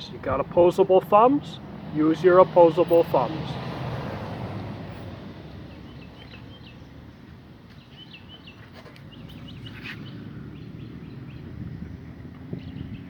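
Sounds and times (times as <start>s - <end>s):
small birds chirping: 5.4s - 13.0s.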